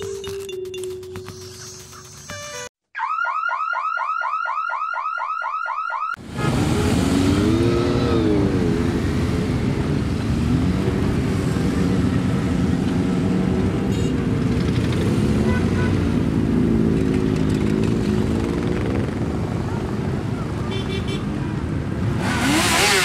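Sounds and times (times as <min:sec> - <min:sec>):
motorcycles riding past: 0:06.4 - 0:23.0.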